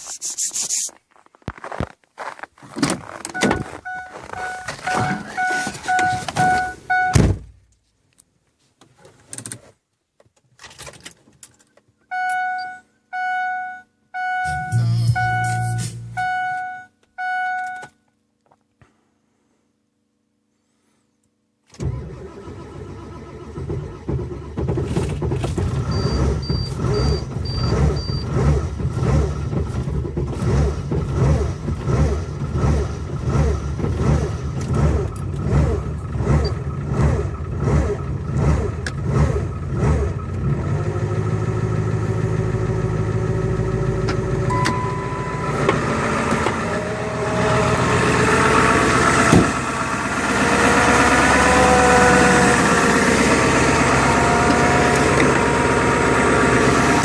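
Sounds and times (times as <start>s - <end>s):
short high beeps: 3.4s - 7.2s, 12.1s - 17.8s, 44.5s - 45.7s
diesel engine running rough: 23.6s - 57.0s.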